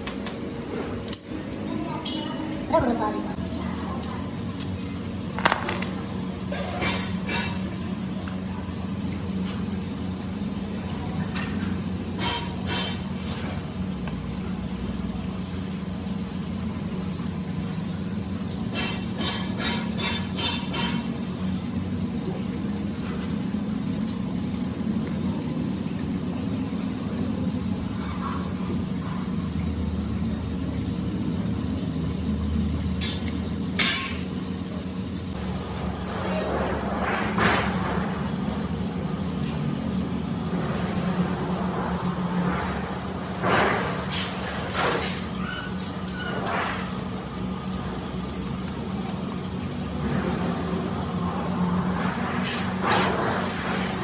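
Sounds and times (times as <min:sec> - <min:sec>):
engine rumbling: 0:21.1 - 0:54.0.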